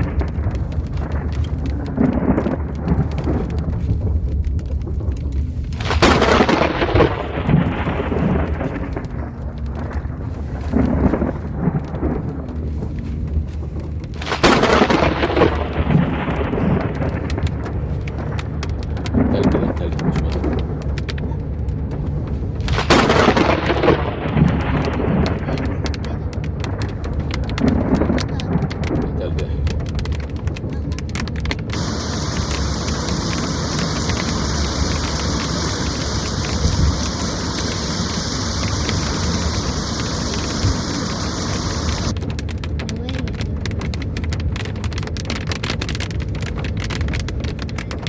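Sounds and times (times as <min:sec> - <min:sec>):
thunder crack: 0:00.0 - 0:12.7, 0:14.1 - 0:21.1, 0:22.6 - 0:30.1, 0:31.4 - 0:42.2
low thunder rumble: 0:00.0 - 0:30.4, 0:31.4 - 0:42.2
heavy rain: 0:00.0 - 0:48.0.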